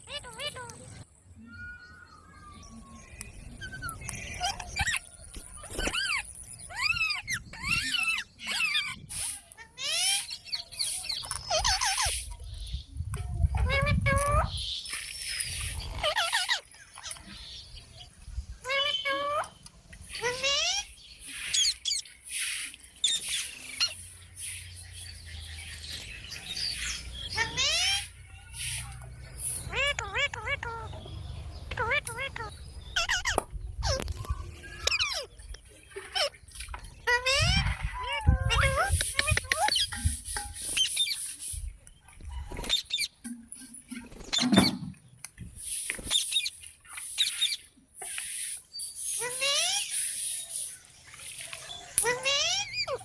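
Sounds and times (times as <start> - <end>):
parakeet chirps and clicks: 0.0 - 0.9, 27.3 - 41.3, 52.0 - 53.0
parrot squawk: 20.2 - 20.9, 27.3 - 28.8, 29.7 - 30.9, 31.8 - 34.1, 37.0 - 39.9, 49.2 - 49.9, 52.0 - 53.0
parrot raspy calls: 27.3 - 28.8, 29.6 - 31.0, 31.7 - 35.4, 52.0 - 53.0.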